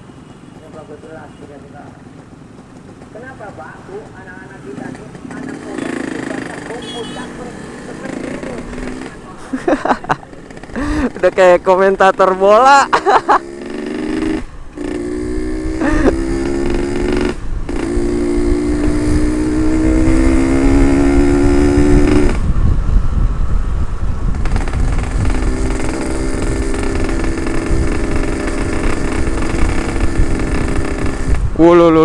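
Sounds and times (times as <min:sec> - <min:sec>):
motorcycle engine revving: 0:01.9 - 0:32.0
wind rumble on microphone: 0:14.4 - 0:32.0.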